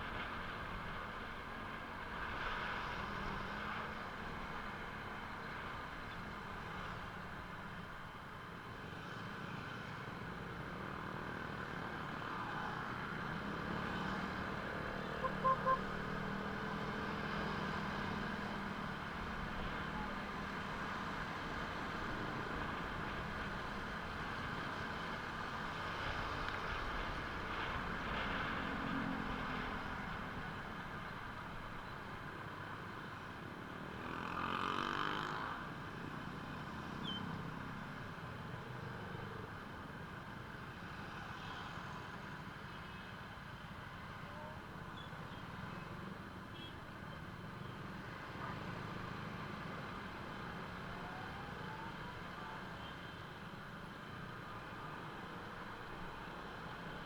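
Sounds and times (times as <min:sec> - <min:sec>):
vehicle noise: 0:08.6 - 0:57.0.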